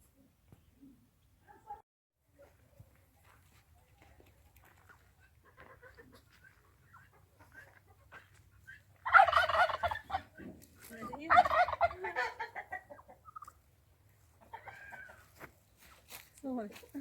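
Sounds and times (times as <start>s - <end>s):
farm fowl rattling calls: 5.4s - 13.7s, 14.3s - 15.4s.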